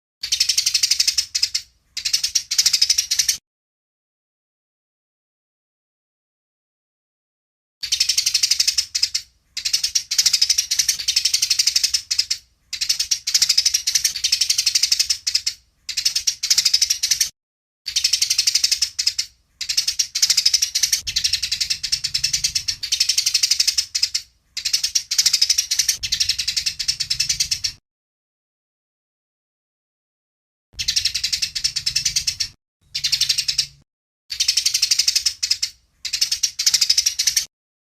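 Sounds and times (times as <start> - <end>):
sparrows chattering: 0.2 - 3.4, 7.8 - 17.3, 17.9 - 27.8, 30.8 - 37.5.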